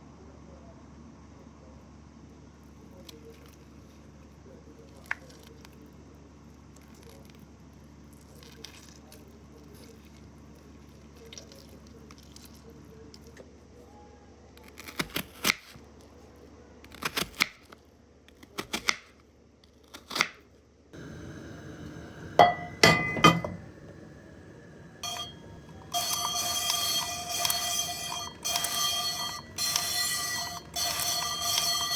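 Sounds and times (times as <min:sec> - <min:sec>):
steady tones: 0:21.0 - 0:31.9
glass and dishes clinking: 0:22.4 - 0:23.7, 0:25.0 - 0:31.9.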